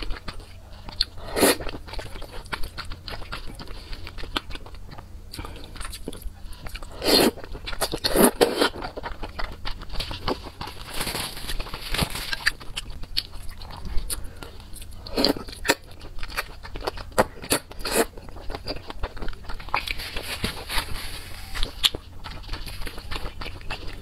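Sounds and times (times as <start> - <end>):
crunchy bites: 0.0 - 24.0
wet chewing and mouth clicks: 0.0 - 24.0
slurping: 0.2 - 4.1, 5.3 - 9.1.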